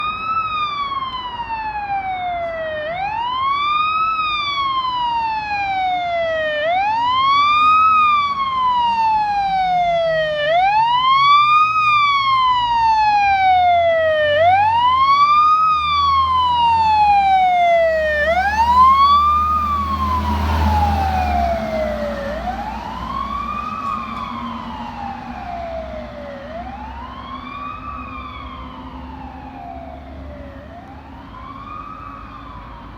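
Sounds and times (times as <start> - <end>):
fire engine siren wailing: 0.0 - 32.9
truck engine rumbling: 7.8 - 32.0.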